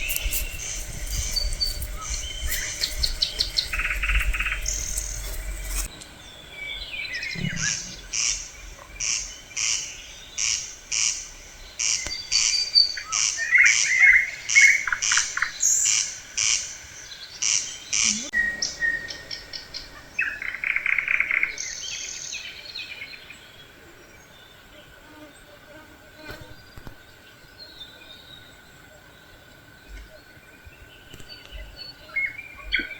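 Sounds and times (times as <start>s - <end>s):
birds chirping and trilling: 0.0s - 25.4s.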